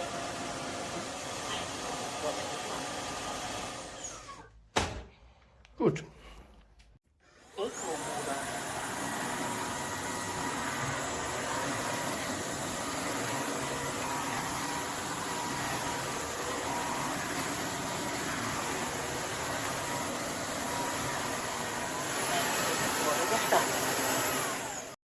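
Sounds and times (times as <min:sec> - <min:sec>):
vacuum motor whine and airflow: 0:07.5 - 0:25.0.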